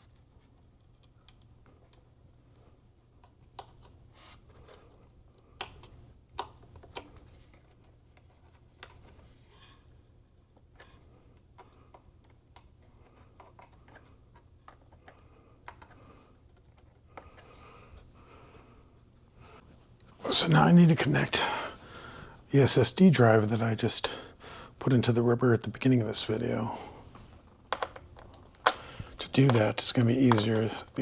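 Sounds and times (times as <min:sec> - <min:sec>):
small clicks of handled parts: 0:10.6 - 0:17.5
low steady hum: 0:17.6 - 0:31.0.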